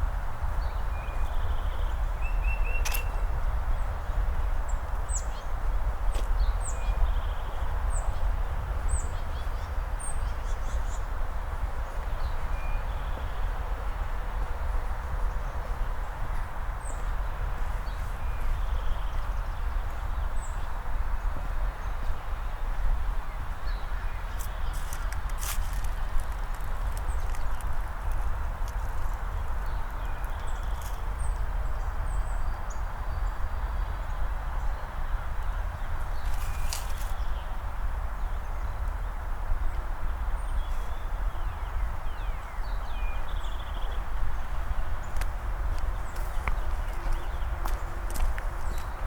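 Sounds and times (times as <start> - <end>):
footsteps on pavement: 24.3 - 31.0, 45.1 - 49.0.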